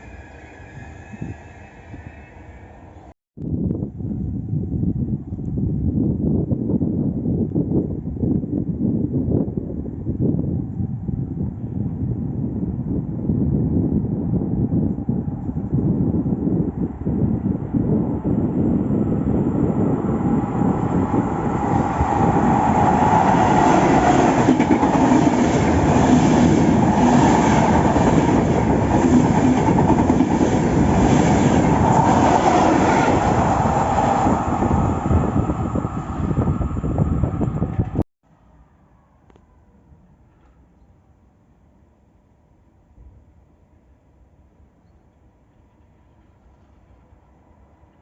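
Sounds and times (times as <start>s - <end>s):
train wheels rumbling over rails: 17.1s - 38.0s.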